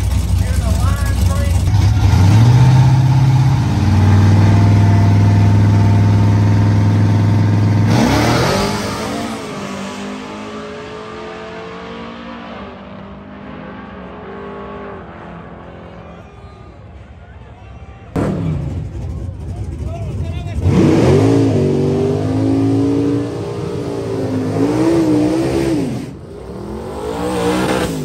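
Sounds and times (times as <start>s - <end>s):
truck engine high revs: 0.0s - 15.9s, 18.2s - 28.0s.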